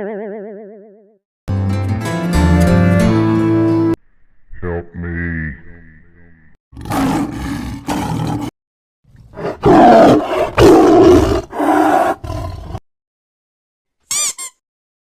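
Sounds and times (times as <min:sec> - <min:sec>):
lion growling: 0:06.8 - 0:08.5, 0:09.3 - 0:12.8
lion roaring: 0:06.8 - 0:08.5, 0:09.3 - 0:12.8.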